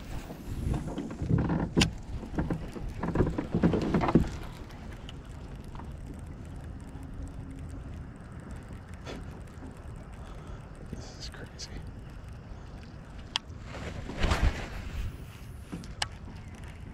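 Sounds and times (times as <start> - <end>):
gear knocking in kayak: 0.3 - 4.8.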